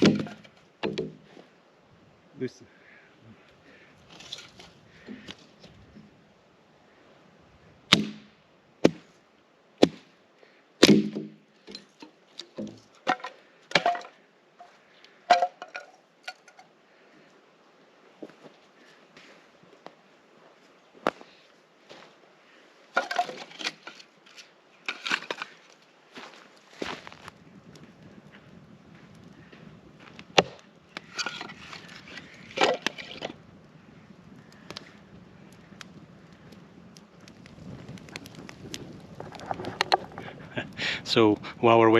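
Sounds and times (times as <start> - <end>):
wood knocks and cracks: 0.0 - 1.2, 7.9 - 9.0, 10.8 - 14.2, 15.3 - 16.6, 23.0 - 25.5, 30.1 - 33.4, 37.2 - 40.3
sticks rustling: 3.4 - 6.1, 10.8 - 16.7, 22.9 - 27.4, 30.0 - 33.4, 37.1 - 40.7.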